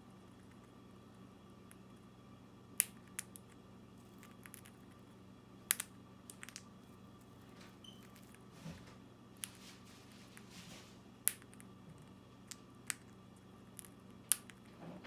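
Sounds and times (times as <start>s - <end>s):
faint low hum: 0.0s - 15.0s
bird beak cracking seeds: 2.8s - 5.0s, 5.7s - 6.7s, 11.2s - 14.7s.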